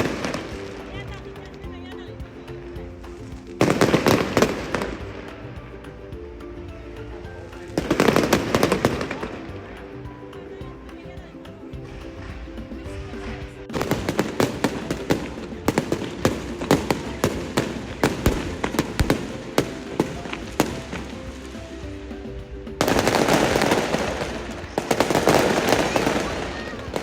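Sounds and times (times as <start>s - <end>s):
fireworks crackling: 0.0s - 27.0s
music playing: 0.0s - 27.0s
fireworks bangs: 22.8s - 27.0s.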